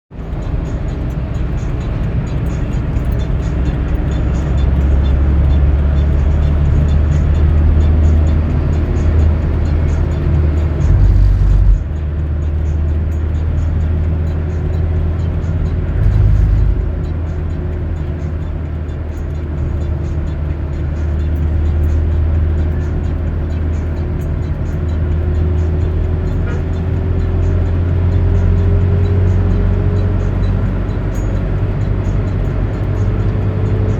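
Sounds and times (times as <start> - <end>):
car engine and tyres rumbling: 0.1 - 33.9
faint rising tone: 10.8 - 11.9, 15.7 - 17.5
short loud low rumbles: 10.8 - 11.9, 15.9 - 17.2.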